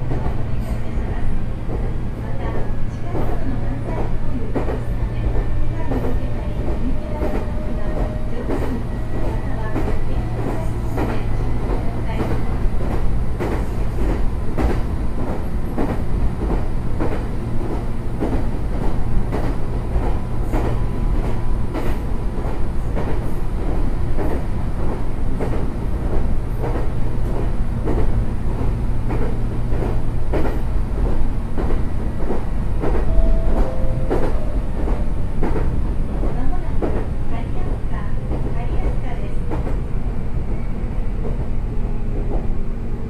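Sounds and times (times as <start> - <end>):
train rumble from inside: 0.0 - 43.0
rail-joint clicks: 29.1 - 39.8.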